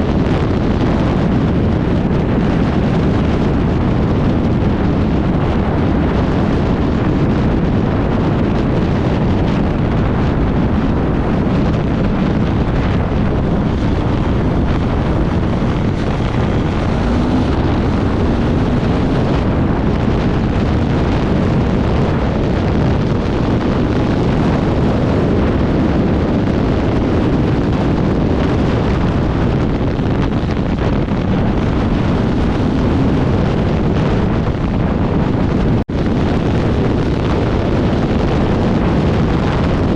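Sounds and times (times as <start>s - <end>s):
motorcycle engine running: 0.0s - 26.0s
wind buffeting microphone: 0.0s - 39.9s.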